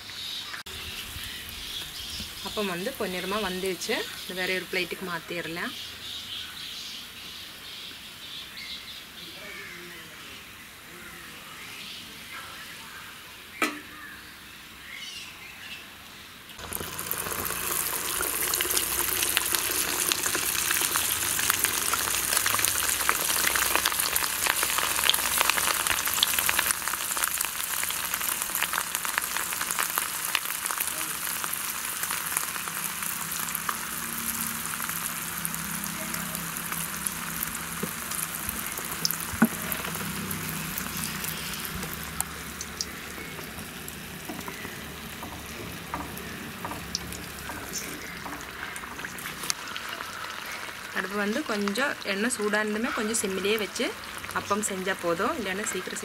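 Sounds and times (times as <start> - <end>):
batter sizzling in hot oil: 16.6 - 56.0
oil popping: 16.6 - 56.0.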